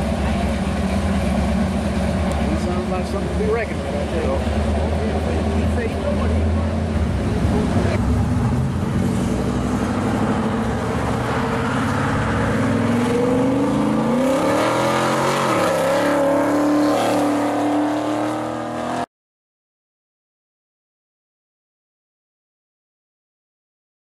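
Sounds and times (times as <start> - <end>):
car engine accelerating: 0.0 - 19.1.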